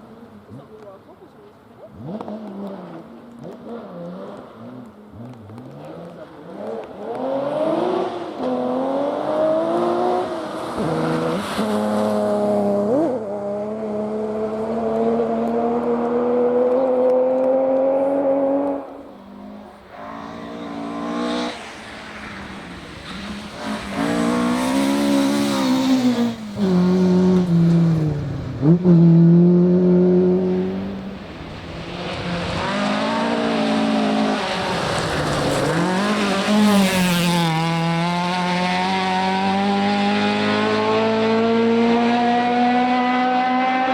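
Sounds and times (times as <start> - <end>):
rally car engine revving: 1.8 - 43.9.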